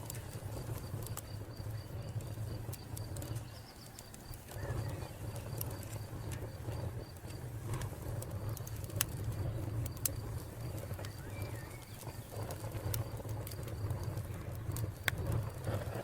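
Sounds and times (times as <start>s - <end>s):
wood fire crackling and popping: 0.0s - 16.0s
cricket trill: 0.1s - 7.5s, 8.4s - 15.0s.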